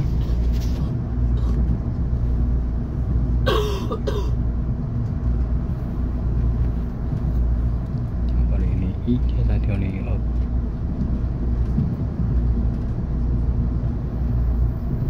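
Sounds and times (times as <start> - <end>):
electric train rumble: 0.0 - 15.0
person coughing: 3.5 - 4.4.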